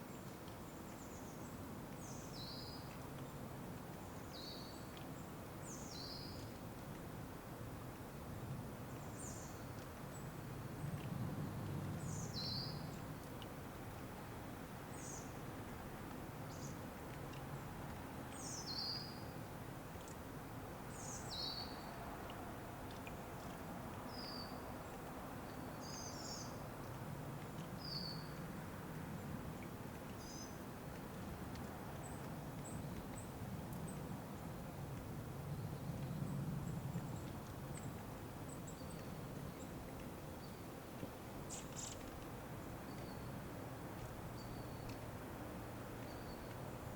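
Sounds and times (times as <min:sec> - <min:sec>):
small birds chirping: 0:18.4 - 0:19.4, 0:20.9 - 0:21.9, 0:22.9 - 0:26.6, 0:27.8 - 0:28.4, 0:41.4 - 0:43.4.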